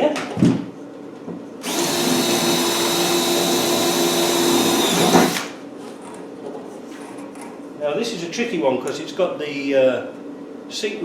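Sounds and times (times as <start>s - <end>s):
power drill drilling metal: 1.6s - 5.6s.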